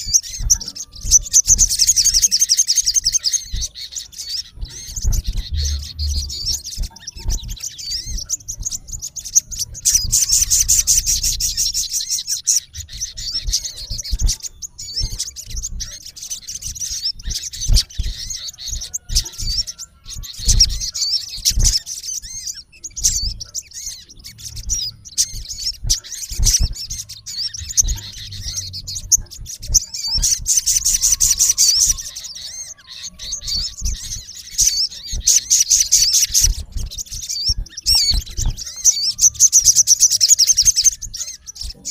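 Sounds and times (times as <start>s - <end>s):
sunbird chirping and trilling: 0.0s - 41.9s
low thumps: 4.5s - 10.7s.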